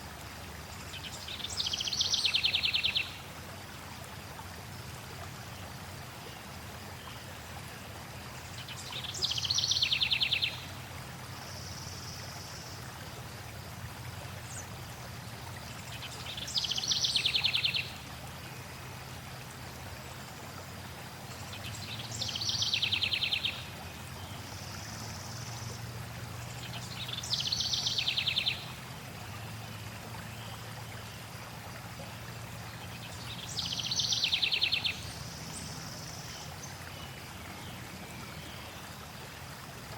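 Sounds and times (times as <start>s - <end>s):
stream water flowing: 0.0s - 39.9s
songbird trilling song: 8.6s - 10.7s, 16.0s - 18.0s, 21.6s - 25.6s, 26.6s - 28.7s, 32.9s - 38.6s.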